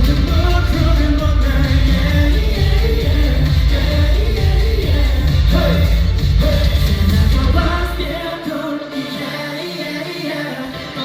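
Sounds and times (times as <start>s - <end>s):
heavy bass beat: 0.0s - 8.3s
live pop music: 0.0s - 11.0s
person singing: 0.0s - 11.0s.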